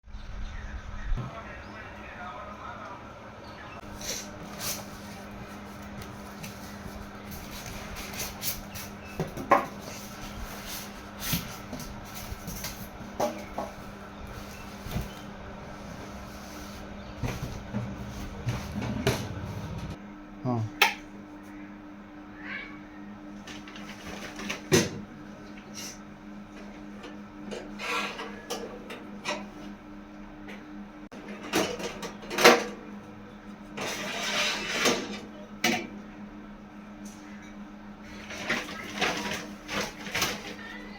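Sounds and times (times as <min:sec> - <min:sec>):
steady low hum: 0:00.1 - 0:23.6
cardboard rustling and scraping: 0:03.9 - 0:20.0.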